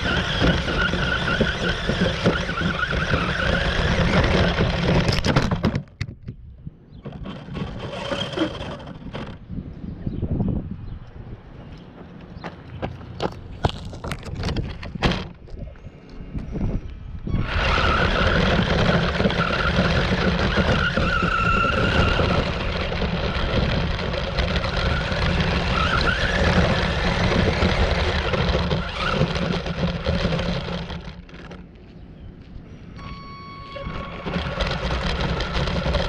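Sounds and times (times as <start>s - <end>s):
tyre and ground rushing noise: 17.3s - 31.8s, 33.6s - 36.0s.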